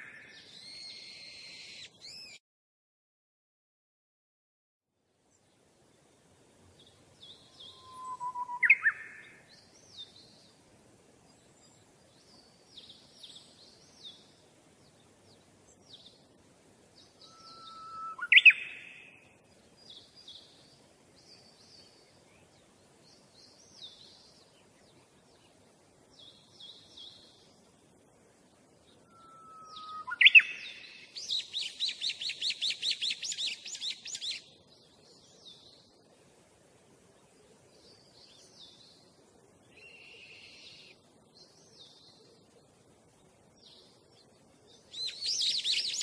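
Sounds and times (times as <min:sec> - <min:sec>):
birds chirping: 0:06.7 - 0:10.6, 0:28.7 - 0:36.0, 0:37.2 - 0:46.0
bird call sweeping upward: 0:07.5 - 0:09.2, 0:17.2 - 0:19.0, 0:29.0 - 0:34.4.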